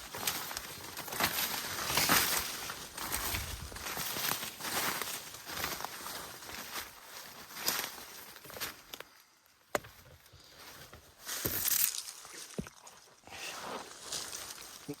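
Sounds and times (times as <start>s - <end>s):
footsteps rustling through leaves: 0.0s - 8.8s, 11.1s - 15.0s.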